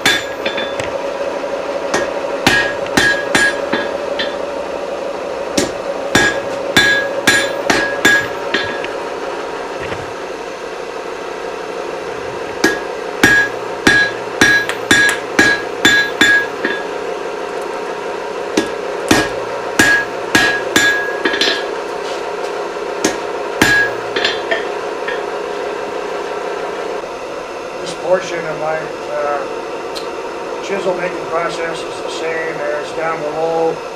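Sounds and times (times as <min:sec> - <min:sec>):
hammer striking steel on anvil: 0:00.0 - 0:01.0, 0:01.9 - 0:04.6, 0:05.5 - 0:09.0, 0:12.6 - 0:17.0, 0:18.5 - 0:21.9, 0:23.0 - 0:25.4
steady hum: 0:00.0 - 0:33.9.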